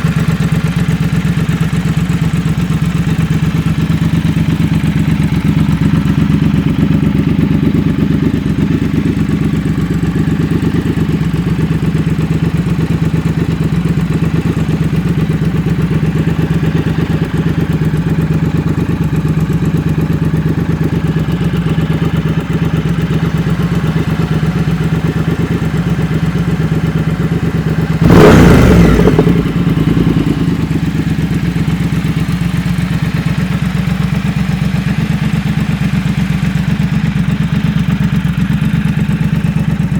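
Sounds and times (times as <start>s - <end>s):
motorcycle engine idling: 0.0s - 39.9s
engine revving burst: 28.0s - 30.4s.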